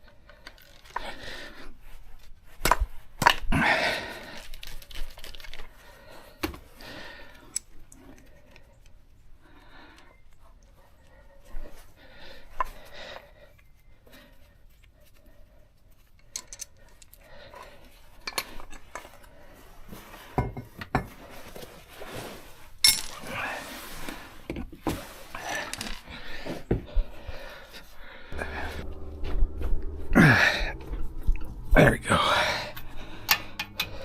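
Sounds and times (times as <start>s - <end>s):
metal tools clinking: 32.7s - 34.0s.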